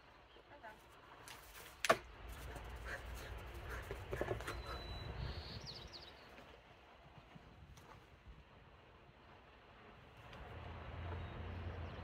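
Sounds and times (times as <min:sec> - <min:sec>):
bird chirping: 0:03.7 - 0:06.4.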